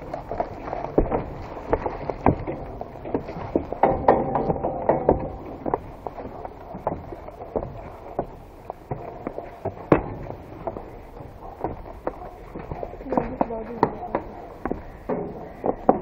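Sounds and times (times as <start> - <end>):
footsteps over debris: 0.0 - 16.0
knocks and clatters of debris: 1.0 - 7.7.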